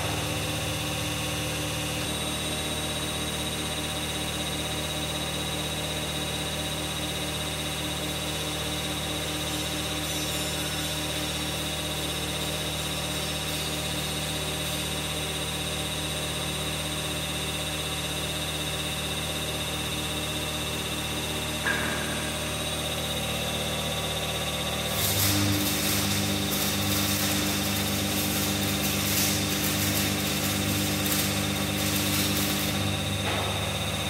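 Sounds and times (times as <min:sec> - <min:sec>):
hydraulic pump motor humming: 0:00.0 - 0:02.3, 0:32.7 - 0:34.0.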